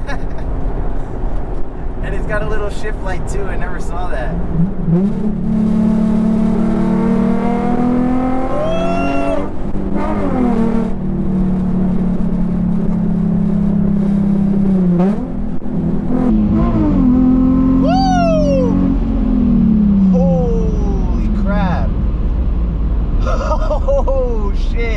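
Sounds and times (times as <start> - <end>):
car engine accelerating: 0.0 - 24.9.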